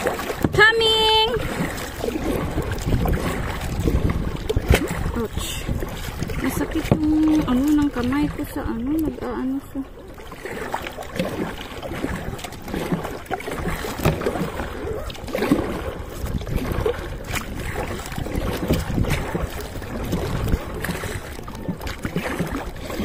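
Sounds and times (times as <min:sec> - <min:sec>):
wind buffeting microphone: 0:00.0 - 0:09.8, 0:10.4 - 0:23.0
paddle splashes: 0:00.0 - 0:23.0
water sloshing against hull: 0:00.0 - 0:23.0.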